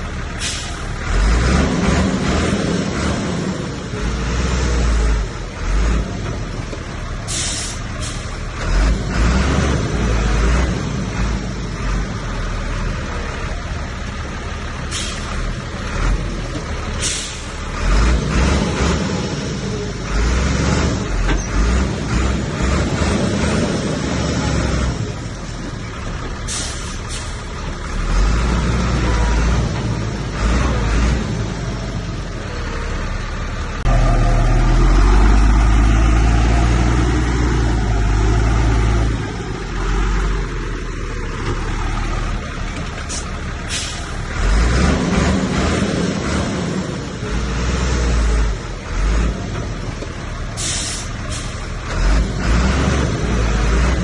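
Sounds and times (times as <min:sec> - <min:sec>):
heavy diesel machinery engine drone: 0:00.0 - 0:54.0
sharp air hisses: 0:07.3 - 0:08.3, 0:17.0 - 0:17.6, 0:50.6 - 0:51.6.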